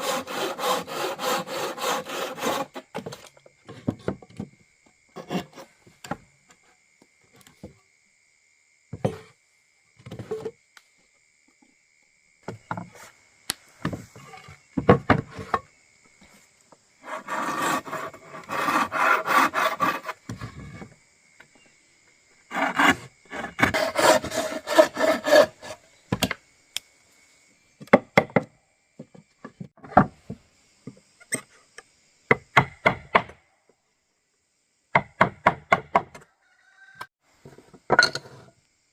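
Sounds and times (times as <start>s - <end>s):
hand tool rasping on wood: 0.0s - 2.9s, 17.0s - 20.3s, 22.5s - 25.8s.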